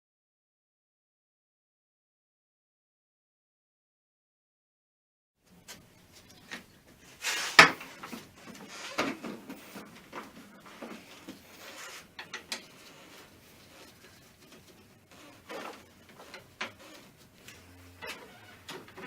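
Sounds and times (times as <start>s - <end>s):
tools and parts clattering: 6.5s - 19.0s.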